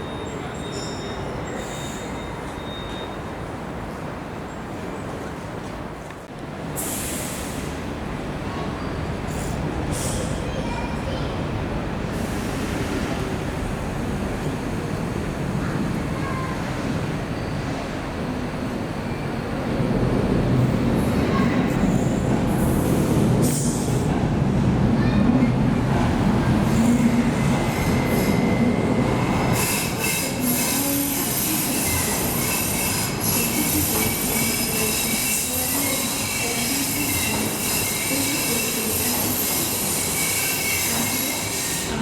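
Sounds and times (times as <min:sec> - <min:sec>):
train wheels squealing: 0:00.0 - 0:03.4, 0:17.2 - 0:18.0, 0:26.7 - 0:42.0
train rumbling on rails: 0:00.0 - 0:42.0.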